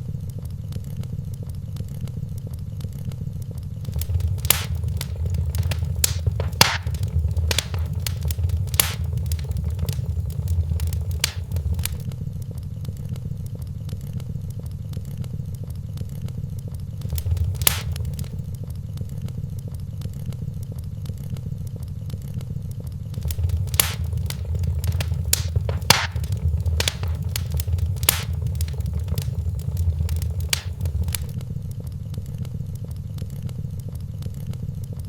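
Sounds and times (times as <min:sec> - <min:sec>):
sharp pops from fire: 0:03.9 - 0:12.0, 0:17.0 - 0:18.4, 0:23.2 - 0:31.4
wood fire crackling: 0:03.9 - 0:12.0, 0:17.0 - 0:18.4, 0:23.2 - 0:31.4.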